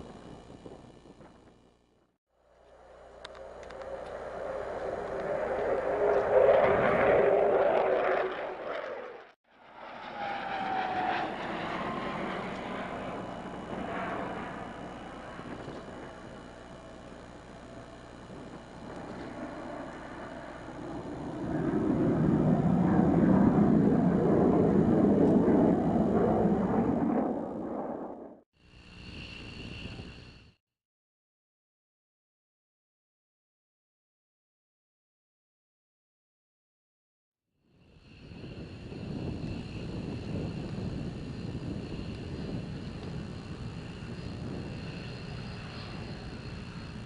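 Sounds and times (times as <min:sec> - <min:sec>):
fighter jet engine: 0:02.5 - 0:28.4, 0:37.7 - 0:47.0.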